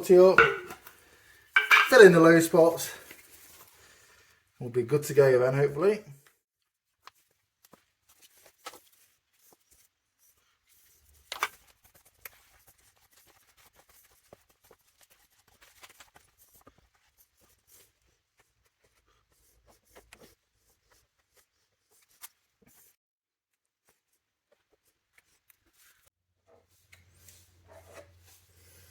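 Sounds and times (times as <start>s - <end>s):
sharp knock: 0.4s - 0.8s.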